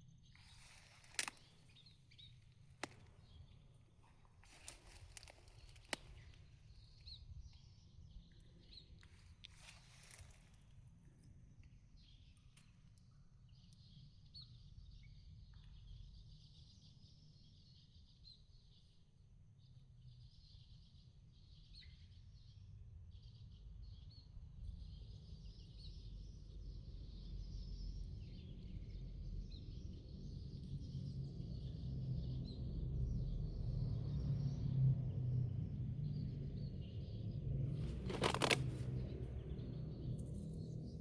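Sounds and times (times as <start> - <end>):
small birds chirping: 0.0 - 10.7, 37.8 - 40.8.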